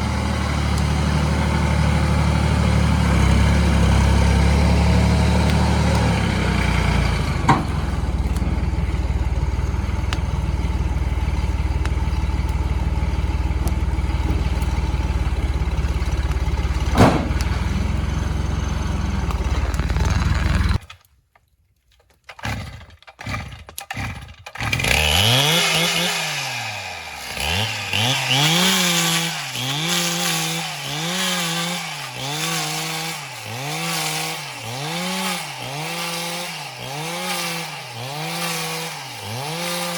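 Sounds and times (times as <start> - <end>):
chainsaw revving: 0.0 - 20.8, 22.4 - 39.9
tractor engine idling: 0.0 - 20.8
knocks: 16.9 - 17.6.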